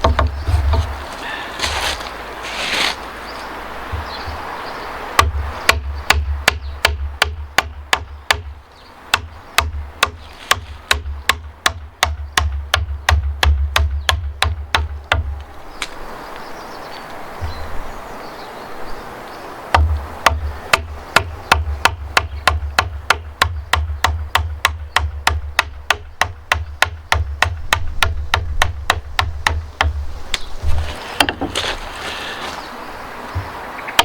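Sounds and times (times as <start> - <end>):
mallet striking chisel in wood: 0.0 - 0.9.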